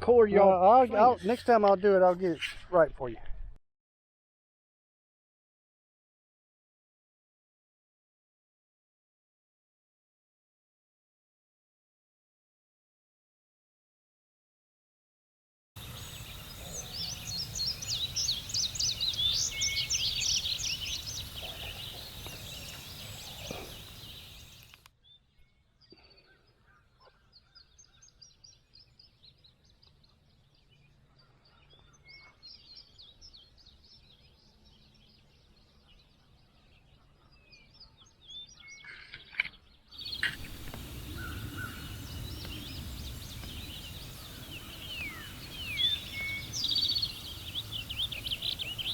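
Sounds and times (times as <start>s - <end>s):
birds chirping: 0.0s - 3.2s, 15.8s - 24.9s, 38.8s - 48.9s
outdoor background noise: 0.0s - 3.6s, 15.8s - 48.9s.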